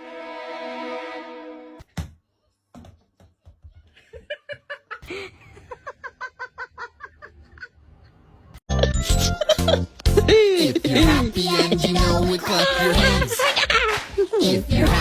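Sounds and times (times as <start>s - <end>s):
voice making rhythmic pitched pulses: 10.4s - 13.5s.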